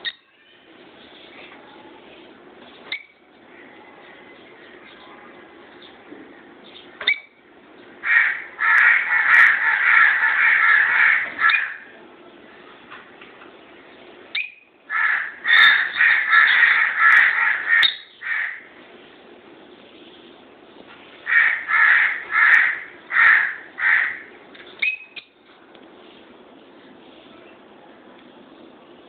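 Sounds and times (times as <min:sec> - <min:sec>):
lovebirds calling: 0:13.5 - 0:18.7.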